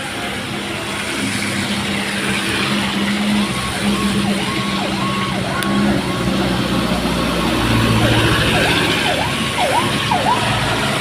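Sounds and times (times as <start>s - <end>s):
tyre and road noise hiss: 0.0s - 4.5s
heavy truck engine running: 0.0s - 11.0s.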